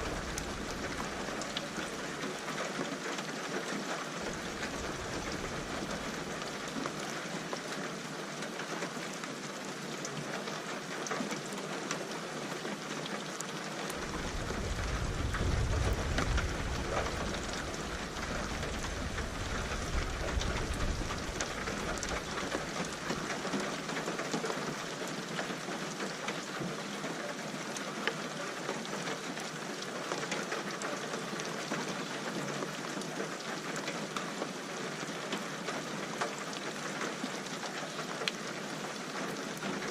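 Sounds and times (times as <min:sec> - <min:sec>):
thunder rumbling: 0:00.0 - 0:01.6, 0:14.0 - 0:22.7
steady rain: 0:00.0 - 0:39.9.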